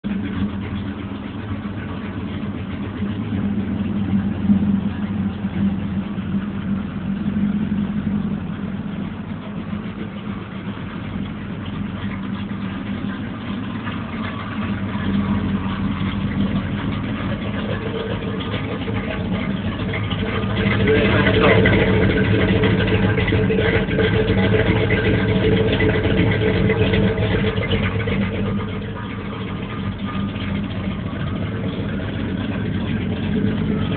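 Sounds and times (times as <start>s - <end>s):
truck engine idling unevenly: 0.0s - 33.9s.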